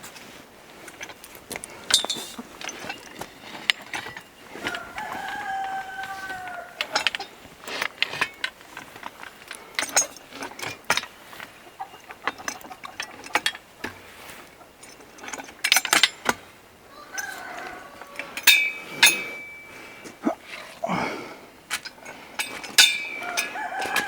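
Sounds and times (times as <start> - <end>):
chicken clucking: 4.6 - 6.8, 16.9 - 18.4, 23.2 - 24.0
sharp clicks and knocks: 6.8 - 16.5.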